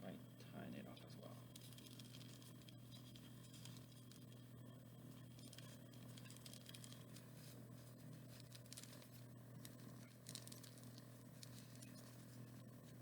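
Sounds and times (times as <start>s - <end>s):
small clicks: 5.3s - 7.2s, 8.3s - 12.2s.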